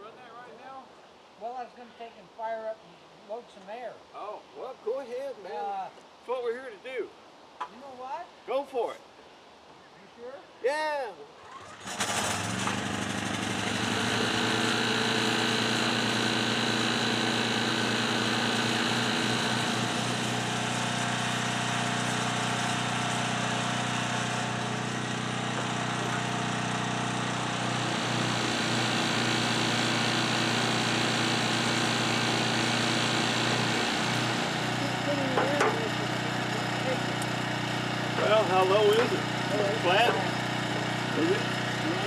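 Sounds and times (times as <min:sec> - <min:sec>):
air compressor engine running: 0:11.5 - 0:42.0.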